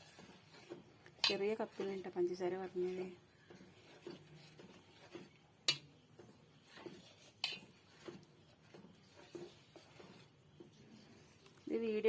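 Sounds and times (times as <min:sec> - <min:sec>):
spoon stirring in a pot: 0:00.0 - 0:12.0.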